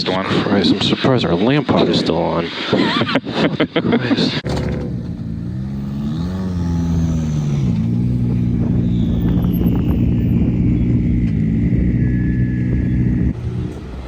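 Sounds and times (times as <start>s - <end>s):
car engine running: 4.4s - 11.8s.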